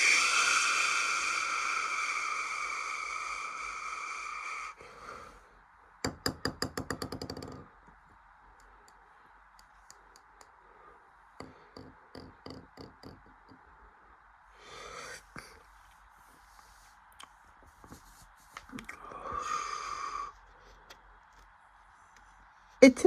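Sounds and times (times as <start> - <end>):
washing machine hiss: 0.0 - 4.8.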